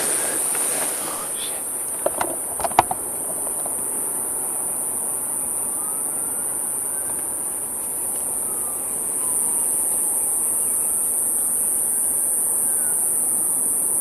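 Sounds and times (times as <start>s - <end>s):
distant traffic rumble: 0.0s - 9.4s
high-pitched insect chorus: 0.0s - 14.0s.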